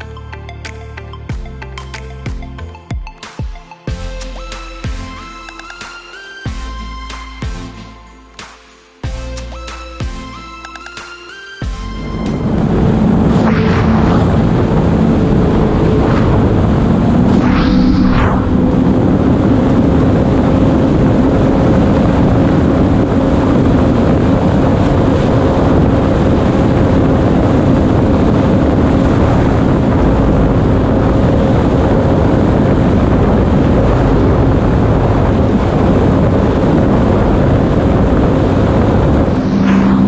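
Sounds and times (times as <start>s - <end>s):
wind noise on microphone: 11.7s - 40.0s.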